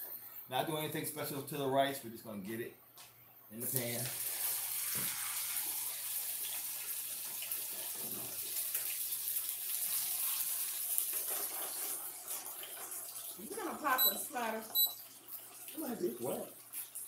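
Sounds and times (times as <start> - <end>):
rice patties sizzling in oil: 3.7 - 14.6.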